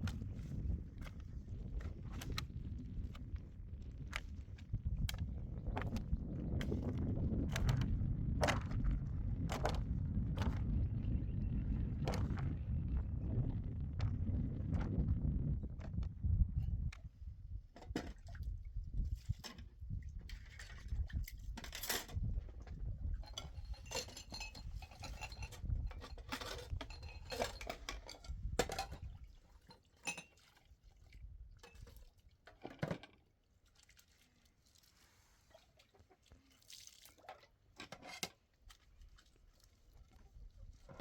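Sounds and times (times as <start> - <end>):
low rumble: 5.0 - 17.0
dishes and utensils clinking: 23.4 - 29.0.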